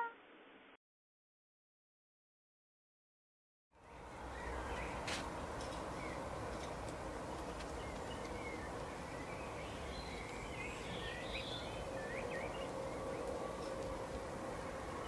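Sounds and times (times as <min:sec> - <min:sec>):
outdoor background noise: 0:03.7 - 0:15.0.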